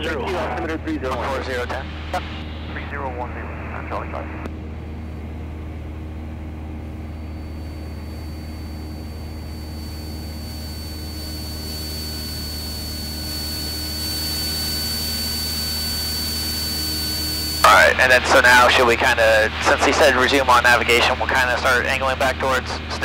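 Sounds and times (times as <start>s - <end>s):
propeller plane engine droning: 0.0s - 23.0s
thin high whine: 5.0s - 23.0s.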